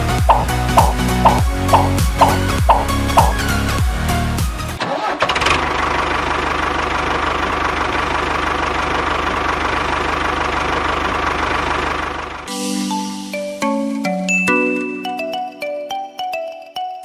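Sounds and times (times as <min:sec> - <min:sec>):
background music: 0:00.0 - 0:04.8, 0:12.5 - 0:17.0.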